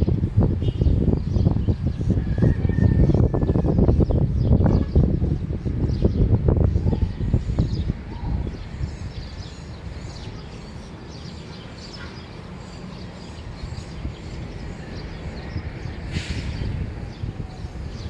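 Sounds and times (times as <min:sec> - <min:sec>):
small birds chirping and singing: 0:00.0 - 0:18.0
brief hiss: 0:16.1 - 0:16.6.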